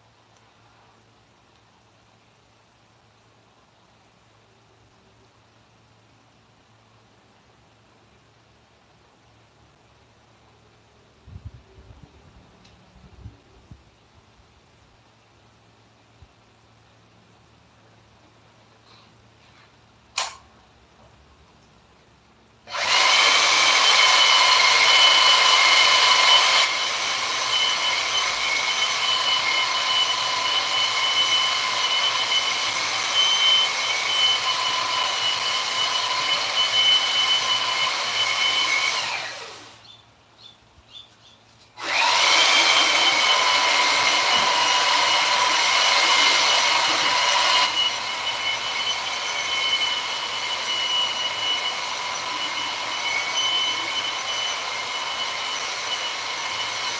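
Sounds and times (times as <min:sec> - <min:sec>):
small motor whining: 0:22.7 - 0:39.9, 0:41.8 - 0:56.9.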